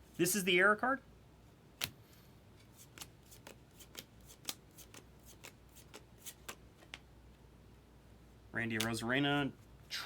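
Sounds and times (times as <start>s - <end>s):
cards being flicked through: 2.8s - 7.0s.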